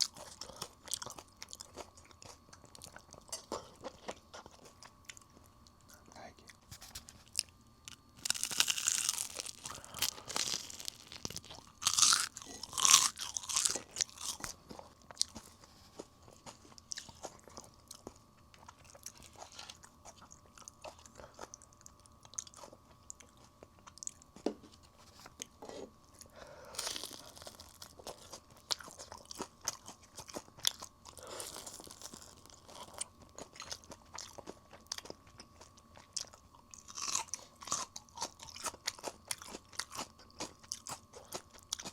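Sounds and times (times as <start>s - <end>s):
fried chicken crunching: 6.9s - 20.6s, 26.7s - 41.9s.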